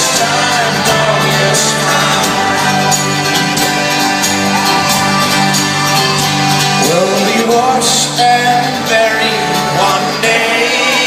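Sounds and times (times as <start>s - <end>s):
live folk-rock band playing: 0.0s - 11.0s
person singing: 6.8s - 11.0s.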